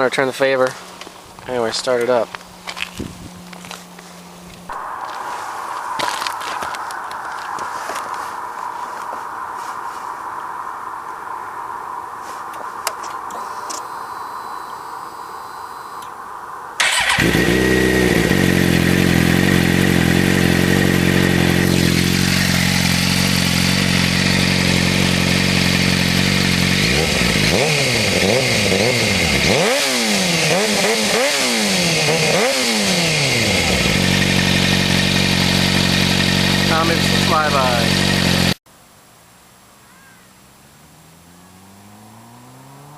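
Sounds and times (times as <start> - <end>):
motorcycle engine idling: 16.8 - 29.6, 30.4 - 38.6
motorcycle throttle blips: 16.8 - 38.6.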